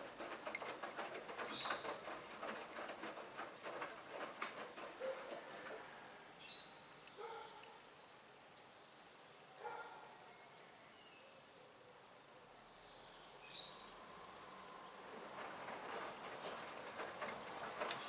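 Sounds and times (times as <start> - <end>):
washing machine drum sloshing: 0.0 - 6.0, 15.0 - 18.0
low steady hiss: 0.0 - 18.0.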